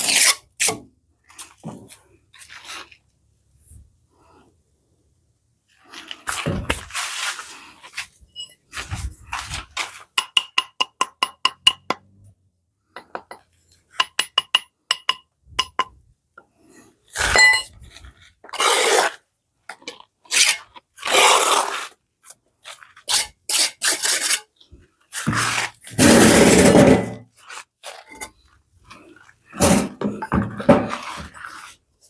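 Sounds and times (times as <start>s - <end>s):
objects scraping: 17.1s - 19.2s, 22.6s - 31.8s
objects clinking and knocking: 29.6s - 31.2s.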